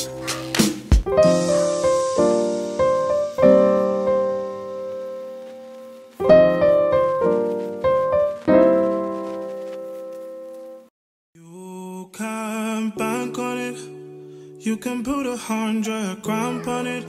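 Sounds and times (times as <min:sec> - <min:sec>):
piano chords ringing: 0:01.1 - 0:10.9, 0:13.0 - 0:15.5.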